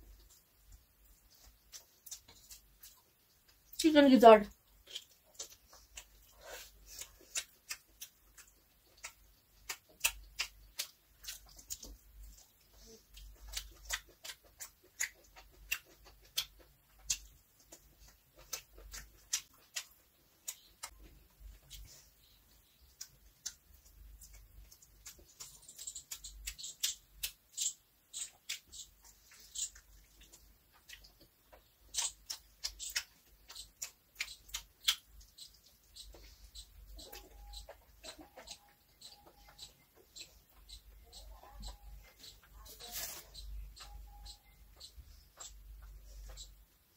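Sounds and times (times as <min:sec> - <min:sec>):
person chewing and lip smacking: 0:00.0 - 0:03.8, 0:04.5 - 0:42.6.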